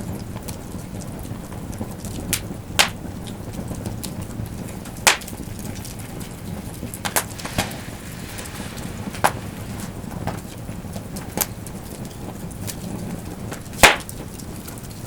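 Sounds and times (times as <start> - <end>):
campfire crackling: 2.0 - 15.0
sharp fire pops: 4.5 - 12.8, 13.5 - 14.5.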